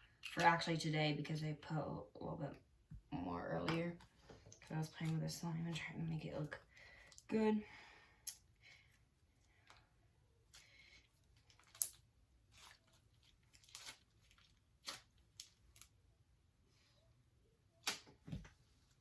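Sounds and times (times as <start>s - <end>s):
slime crackles and clicks: 11.4s - 12.0s.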